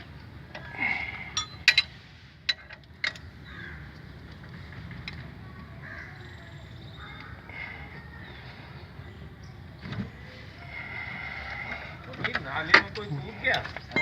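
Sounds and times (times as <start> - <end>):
hand tools clicking and knocking: 1.3 - 1.9
faint crow caws: 3.4 - 4.1, 5.7 - 8.1.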